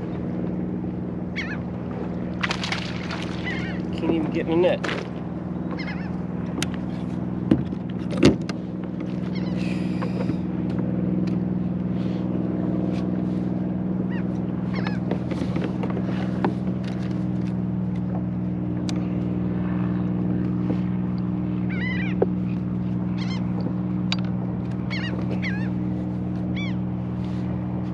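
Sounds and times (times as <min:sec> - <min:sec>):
motorboat engine humming: 0:00.0 - 0:27.9
bird calling: 0:01.3 - 0:01.7, 0:03.0 - 0:04.0, 0:05.6 - 0:06.2, 0:09.2 - 0:10.4, 0:14.0 - 0:15.1, 0:21.6 - 0:22.3, 0:23.1 - 0:23.6, 0:24.8 - 0:25.8, 0:26.5 - 0:26.8.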